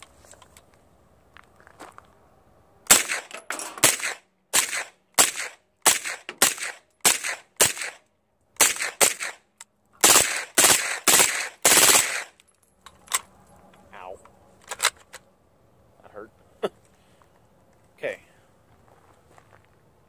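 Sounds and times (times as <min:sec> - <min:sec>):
suppressed gunshots: 0:02.9 - 0:08.0, 0:08.6 - 0:09.4, 0:10.0 - 0:12.4.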